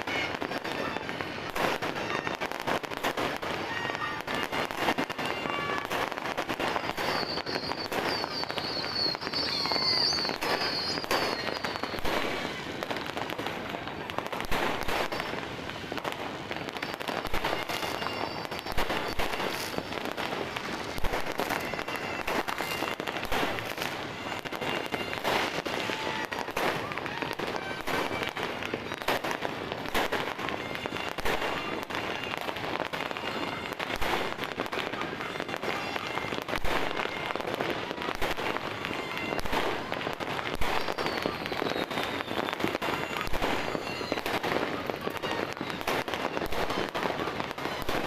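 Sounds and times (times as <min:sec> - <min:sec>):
deep fireworks booms: 0:00.0 - 0:35.8
fireworks crackling and banging: 0:00.0 - 0:48.0
high warbling whistle: 0:07.0 - 0:12.0.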